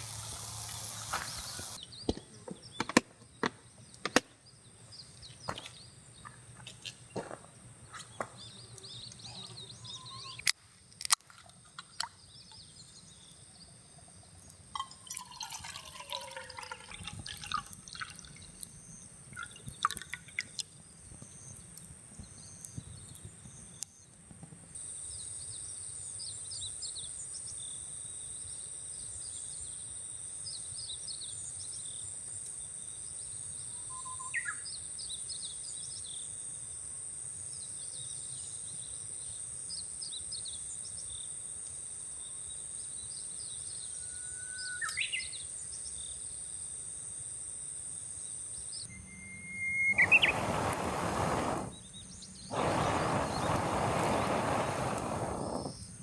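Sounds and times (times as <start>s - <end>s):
sharp clicks and knocks: 2.1s - 4.3s
liquid pouring and dripping: 14.8s - 18.8s, 19.4s - 20.6s.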